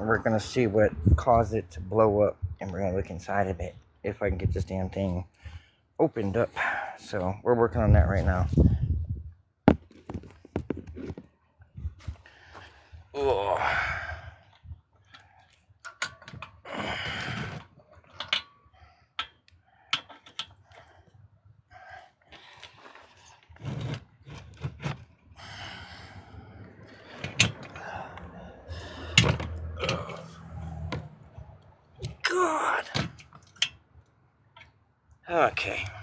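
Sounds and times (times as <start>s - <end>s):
hand tools clicking and clanking: 15.0s - 20.9s, 26.8s - 34.8s.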